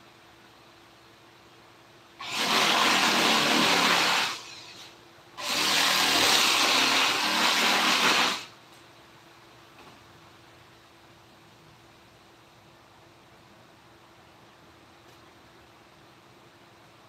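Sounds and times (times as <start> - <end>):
power tool running: 2.2 - 8.5.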